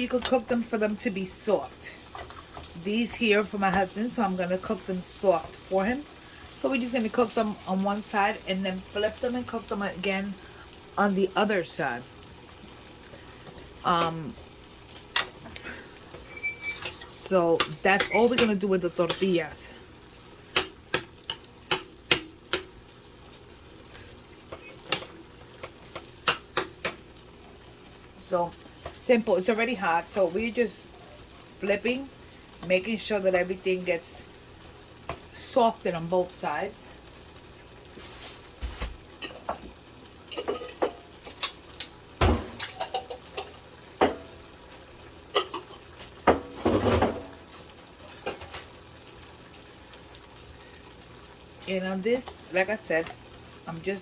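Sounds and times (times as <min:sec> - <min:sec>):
utensil clicking against a pan: 0:20.5 - 0:22.7, 0:24.8 - 0:27.0.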